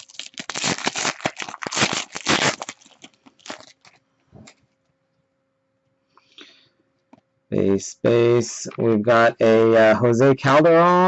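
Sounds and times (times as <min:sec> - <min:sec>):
packaging crinkling and rustling: 0:00.0 - 0:04.6.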